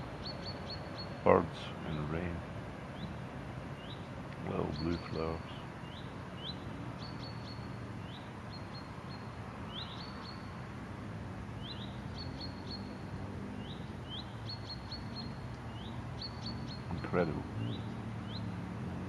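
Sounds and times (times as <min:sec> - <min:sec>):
songbird chirping: 0:00.0 - 0:10.8, 0:11.6 - 0:19.0.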